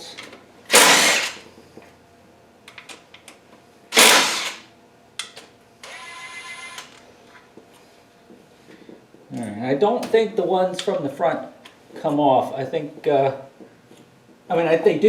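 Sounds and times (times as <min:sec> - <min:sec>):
mechanical buzz: 0:00.7 - 0:01.4, 0:03.9 - 0:04.7.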